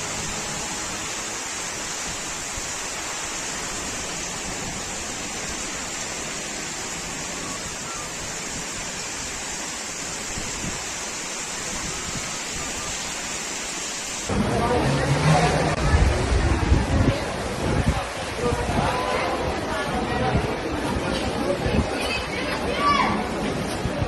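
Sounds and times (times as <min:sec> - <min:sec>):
heavy rainwater rushing: 0:00.0 - 0:24.0.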